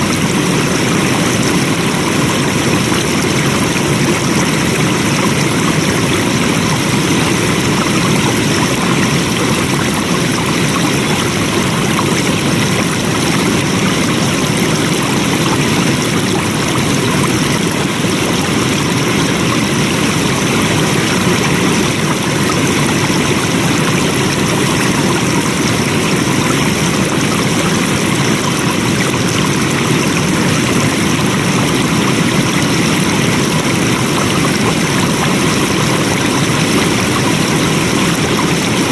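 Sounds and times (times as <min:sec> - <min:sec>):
stream flowing: 0:00.0 - 0:38.9.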